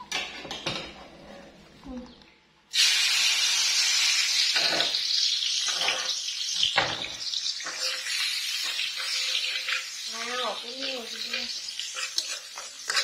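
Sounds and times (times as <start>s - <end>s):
food sizzling in a wok: 2.7s - 13.0s
metal spatula strokes: 7.6s - 9.9s, 11.7s - 13.0s.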